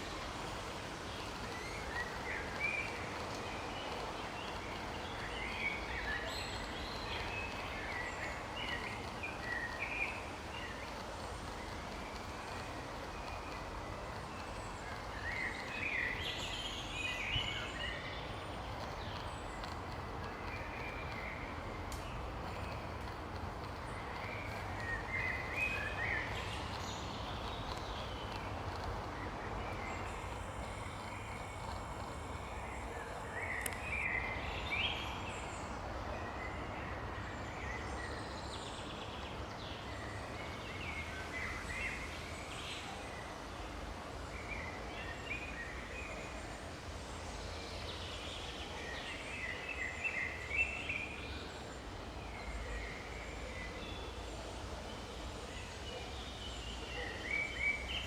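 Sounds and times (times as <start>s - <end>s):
steady background hiss: 0.0s - 58.0s
birds chirping: 1.7s - 35.7s.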